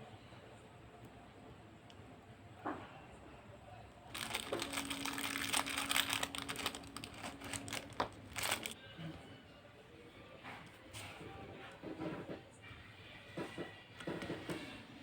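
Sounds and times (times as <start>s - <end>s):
crinkling rustling handling noise: 4.1s - 8.8s.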